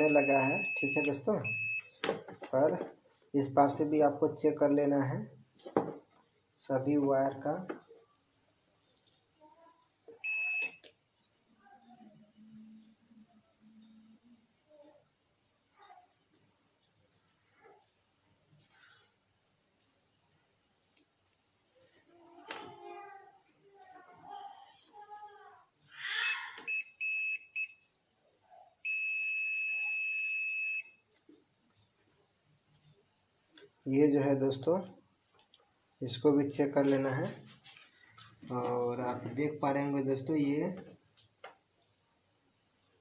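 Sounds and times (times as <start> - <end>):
electronic beeps: 0.0 - 2.0, 10.2 - 10.8, 26.7 - 27.8, 28.9 - 30.9
crickets chirping: 0.0 - 43.0.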